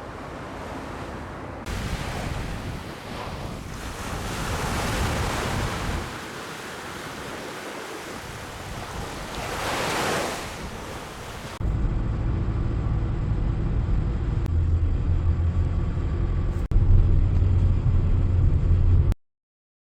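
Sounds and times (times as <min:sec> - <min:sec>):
surf washing on beach: 0:00.0 - 0:11.6
dull low rumble: 0:11.6 - 0:19.2.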